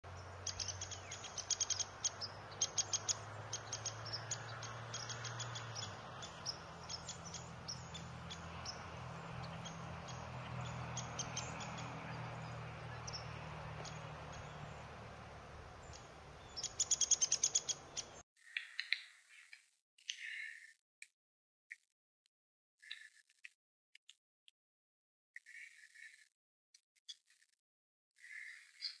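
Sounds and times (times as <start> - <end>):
birds ticking and chipping: 0.1 - 20.7.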